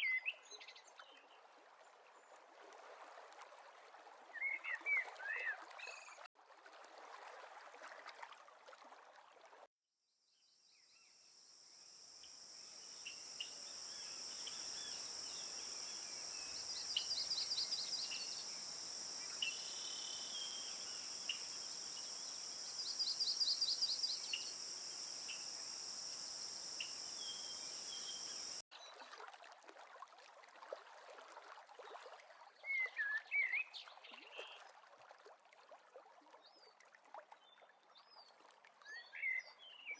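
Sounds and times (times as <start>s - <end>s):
high-pitched insect chorus: 11.9s - 28.6s.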